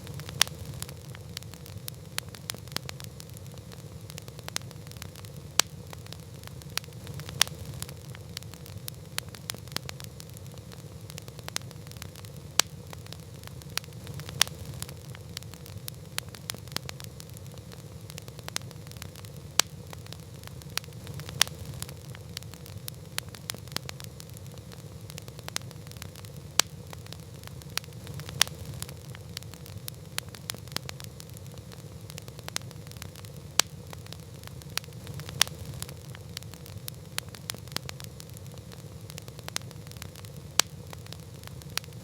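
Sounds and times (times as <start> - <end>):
campfire flame rumble: 0.0 - 42.0
fire crackling and popping: 0.0 - 42.0.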